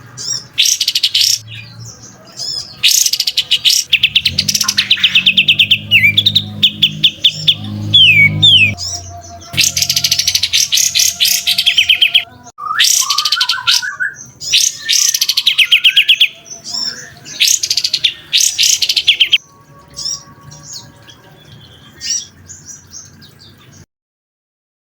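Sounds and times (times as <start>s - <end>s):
lower warbled bird phrase: 2.2s - 22.4s
songbird rapid high trills: 2.8s - 12.2s.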